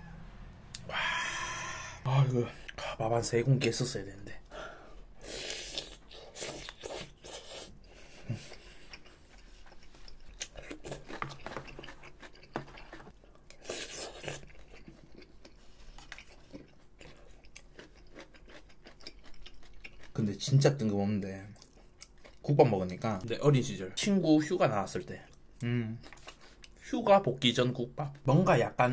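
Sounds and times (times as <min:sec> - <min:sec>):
rush of noise: 0:00.0 - 0:02.1
wet chewing: 0:05.2 - 0:20.6, 0:21.4 - 0:23.3, 0:25.2 - 0:26.8.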